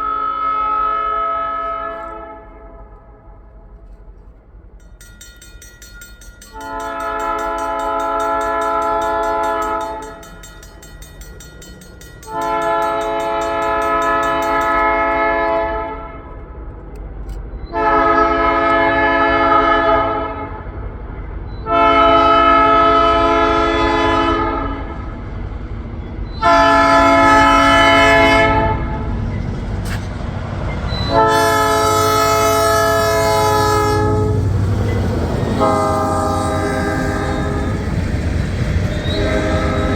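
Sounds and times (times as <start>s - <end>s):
locomotive air horn blasts: 0.0s - 2.9s, 6.5s - 10.2s, 12.3s - 16.4s, 17.7s - 20.6s, 21.6s - 25.0s, 26.4s - 29.2s, 31.0s - 34.6s, 35.6s - 37.8s, 38.9s - 39.9s.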